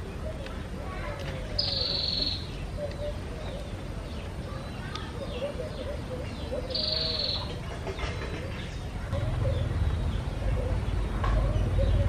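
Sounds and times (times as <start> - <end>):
birds calling: 0.0 - 12.0
faint high chirps: 1.5 - 7.5.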